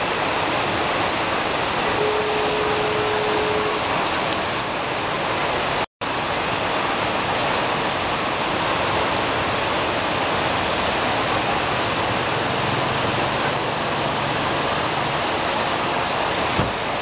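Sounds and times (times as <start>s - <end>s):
heavy rain pouring: 0.0s - 17.0s
brief steady tone: 1.8s - 3.8s.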